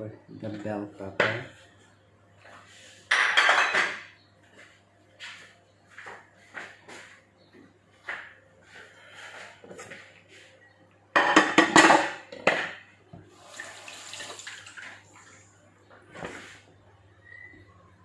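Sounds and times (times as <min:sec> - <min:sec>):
small kitchen knocks: 0:00.5 - 0:01.5, 0:03.1 - 0:04.2, 0:11.1 - 0:13.2
tap water running: 0:13.1 - 0:15.3.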